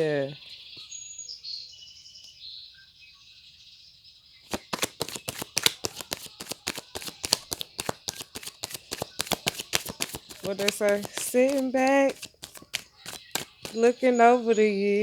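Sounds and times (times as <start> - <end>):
cards being shuffled: 4.5 - 13.9.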